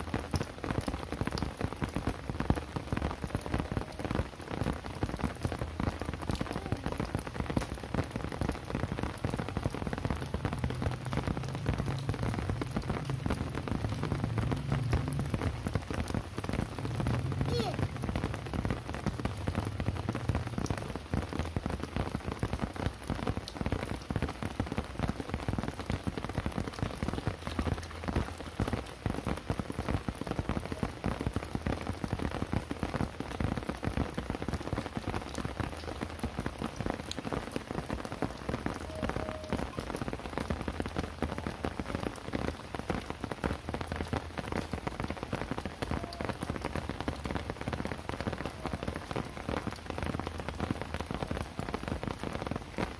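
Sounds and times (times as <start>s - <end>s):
heavy rain: 0.0s - 52.9s.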